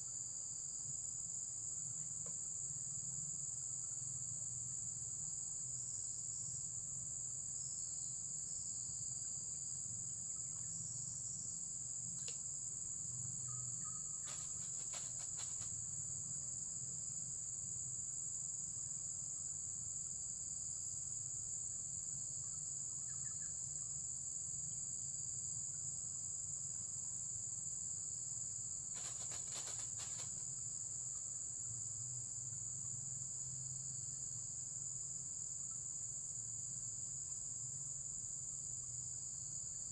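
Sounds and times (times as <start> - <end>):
crickets chirping: 0.0 - 39.9
runs of clicks: 14.3 - 15.7.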